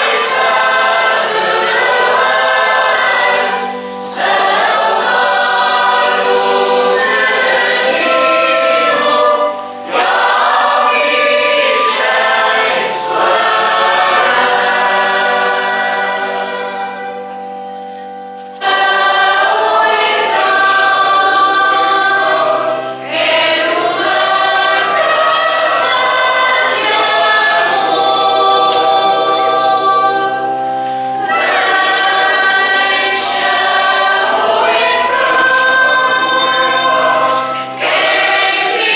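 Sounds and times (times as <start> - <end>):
church choir singing a hymn: 0.0 - 38.9.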